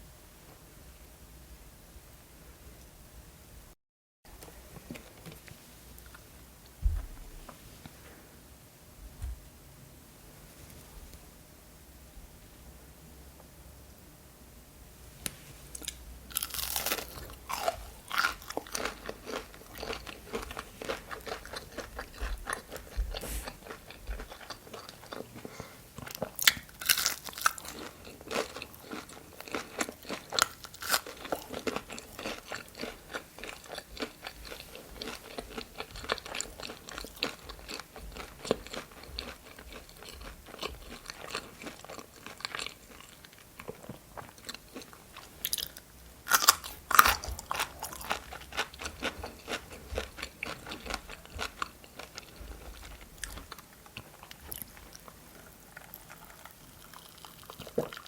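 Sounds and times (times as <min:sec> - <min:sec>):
crunching food bites: 0:15.8 - 0:25.4, 0:26.0 - 0:58.0
wet chewing: 0:15.8 - 0:58.0.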